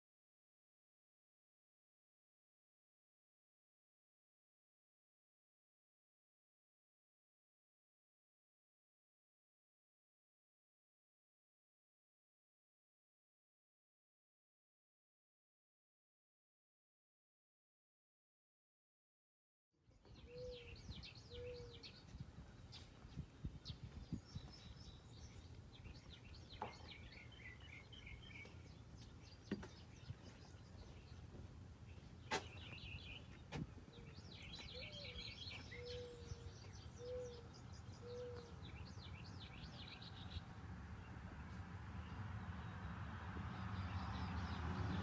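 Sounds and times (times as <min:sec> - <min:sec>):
birds chirping and trilling: 0:19.9 - 0:45.0.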